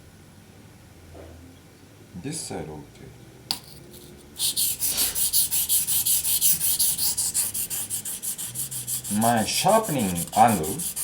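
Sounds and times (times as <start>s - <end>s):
knife scraping on whetstone: 4.0s - 11.0s.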